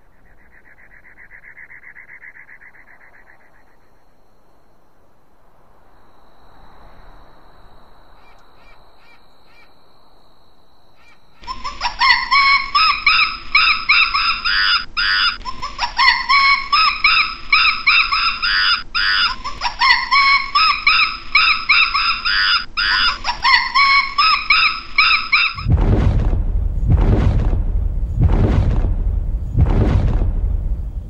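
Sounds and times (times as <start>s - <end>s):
animal calling harshly: 11.0s - 25.7s.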